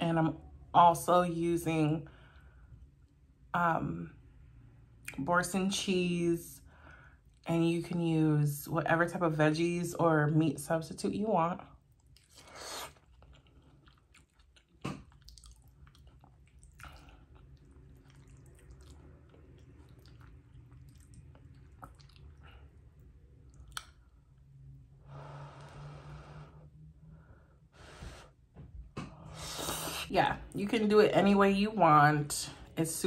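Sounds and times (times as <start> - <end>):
close chewing: 11.8 - 24.1.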